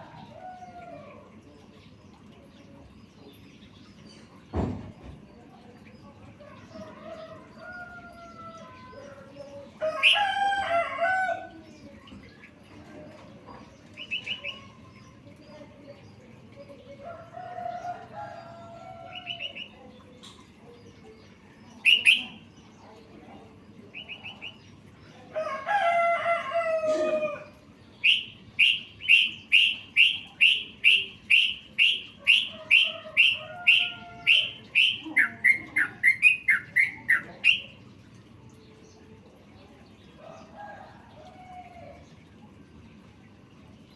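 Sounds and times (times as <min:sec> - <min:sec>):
songbird chirping: 0:00.0 - 0:43.9.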